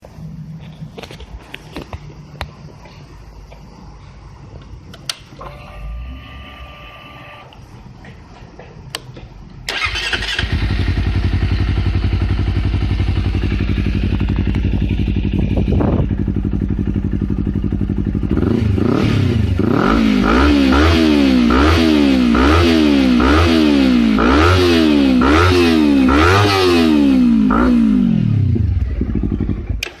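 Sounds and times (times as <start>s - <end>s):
motorcycle engine idling and revving: 8.9s - 30.0s.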